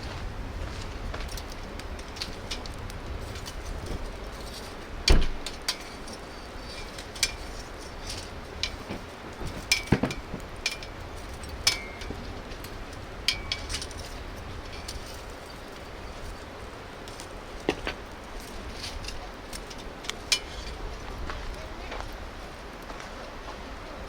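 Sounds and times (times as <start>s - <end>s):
metallic clinks of camp gear: 1.2s - 21.0s
heavy thud: 5.1s - 5.5s.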